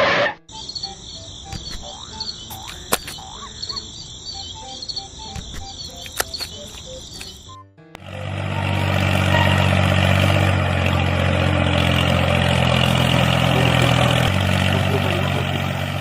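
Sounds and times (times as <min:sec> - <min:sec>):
insects chirping: 0:00.5 - 0:07.6, 0:08.2 - 0:16.0
short croaking calls: 0:00.5 - 0:07.6
sharp clicks: 0:01.2 - 0:03.8, 0:04.6 - 0:07.6.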